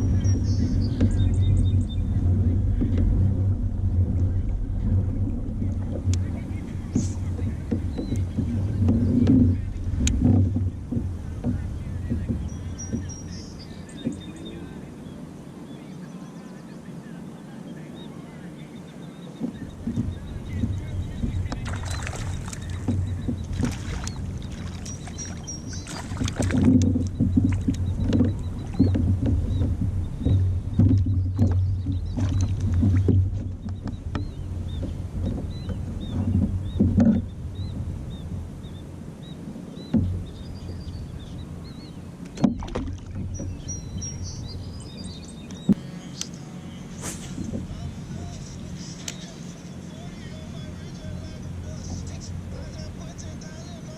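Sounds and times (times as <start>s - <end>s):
kayak drive humming: 0.0s - 53.9s
water against hull: 0.0s - 53.9s
knocks on hull: 4.9s - 13.3s, 19.4s - 37.9s, 39.8s - 40.8s, 42.4s - 44.1s.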